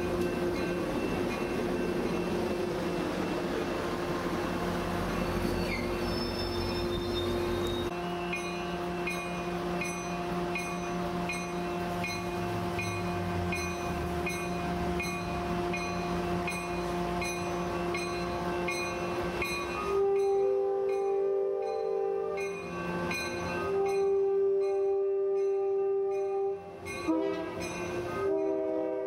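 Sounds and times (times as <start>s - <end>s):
crossing bell ringing: 0.0s - 29.0s
train rolling drone: 0.0s - 29.0s
train horn: 5.8s - 29.0s.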